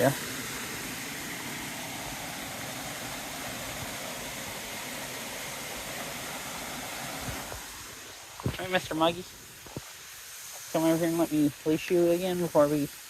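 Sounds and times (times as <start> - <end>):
small waterfall rushing: 0.0 - 13.0.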